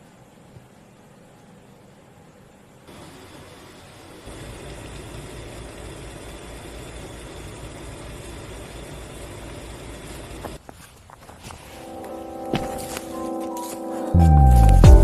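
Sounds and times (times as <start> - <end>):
engine-like rumble: 0.8 - 10.6.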